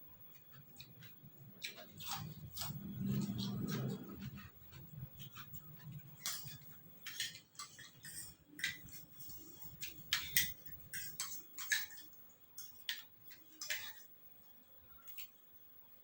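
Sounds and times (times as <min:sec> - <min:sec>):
dishes clinking: 0:06.2 - 0:14.1.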